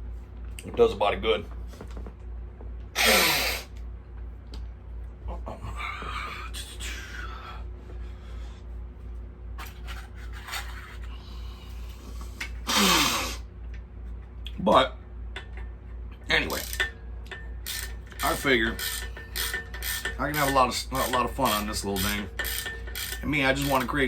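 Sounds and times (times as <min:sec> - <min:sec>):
rustling and tool handling: 0:16.4 - 0:24.0.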